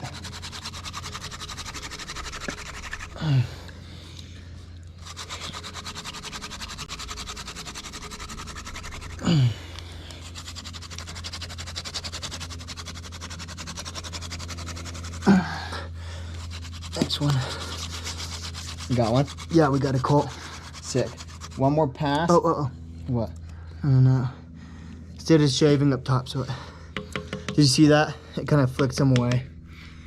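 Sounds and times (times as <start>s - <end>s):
hand drill scratchy rubbing: 0.0s - 3.3s, 5.0s - 9.5s, 10.1s - 15.3s, 16.2s - 21.8s.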